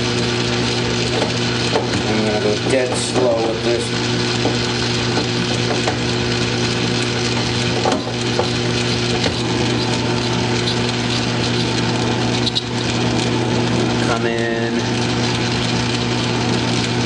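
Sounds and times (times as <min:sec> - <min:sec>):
lathe humming: 0:00.0 - 0:17.0
metal cutting scrape: 0:01.0 - 0:13.4.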